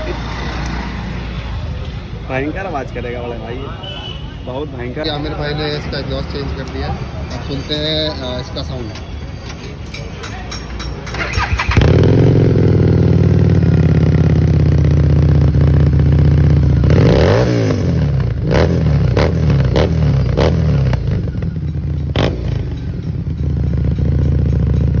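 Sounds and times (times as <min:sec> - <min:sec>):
motorcycle engine revving and idling: 0:11.0 - 0:25.0.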